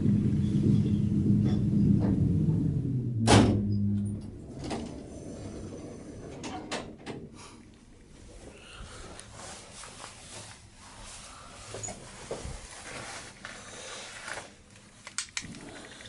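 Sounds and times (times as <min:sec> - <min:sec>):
lift running with rumble and hum: 0:00.0 - 0:13.6
loud clunk: 0:00.5 - 0:05.0.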